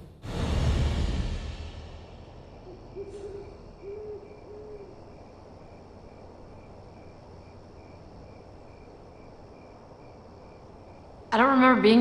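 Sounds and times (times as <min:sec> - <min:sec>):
crickets chirping: 0:01.8 - 0:12.0
owl hooting: 0:02.6 - 0:05.2.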